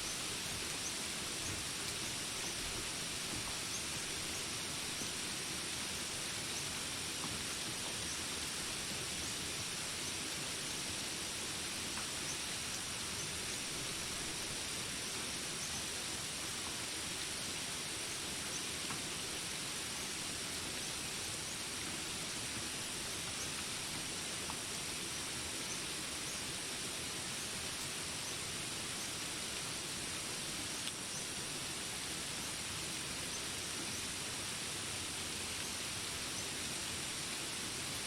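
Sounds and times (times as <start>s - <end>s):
rain hiss: 0.0s - 38.0s.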